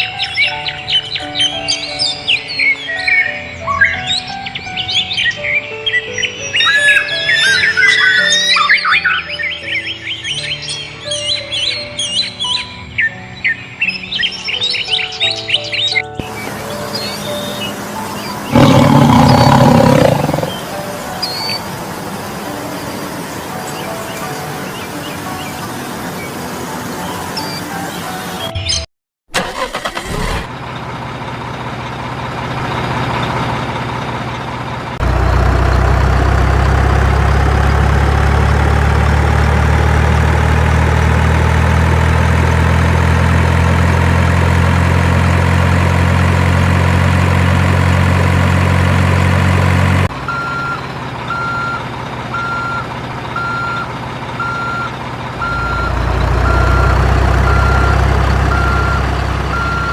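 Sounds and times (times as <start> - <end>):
truck engine running loudly: 16.1 - 28.5, 29.4 - 59.9
reversing alarm beeping: 50.3 - 59.9.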